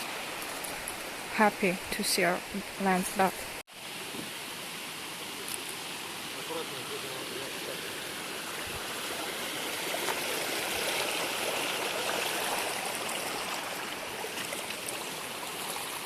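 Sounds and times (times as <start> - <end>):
mountain stream rushing: 0.0 - 16.0.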